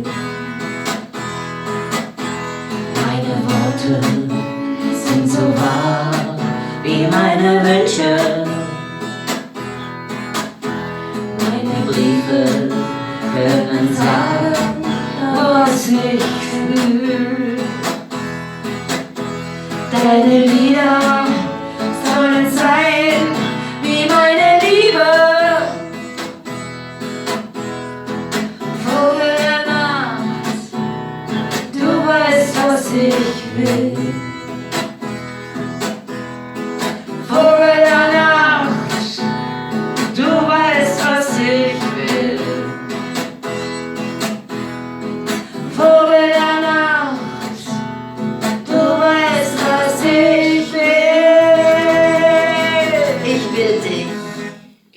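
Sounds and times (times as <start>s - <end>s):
acoustic guitar: 0.0s - 54.9s
woman singing: 2.7s - 9.0s, 11.3s - 18.0s, 19.7s - 26.3s, 28.6s - 34.7s, 36.8s - 43.2s, 45.3s - 54.5s.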